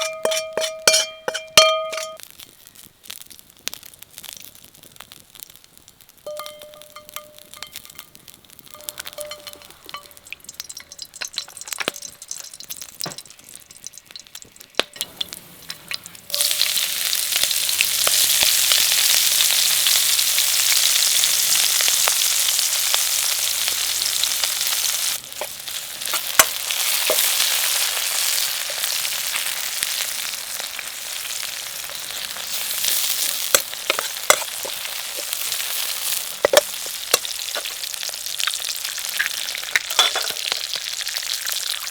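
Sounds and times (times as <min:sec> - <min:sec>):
food sizzling in hot oil: 0:00.0 - 0:41.9
crackles and clicks: 0:02.1 - 0:41.9
stirring clicks: 0:06.3 - 0:16.3.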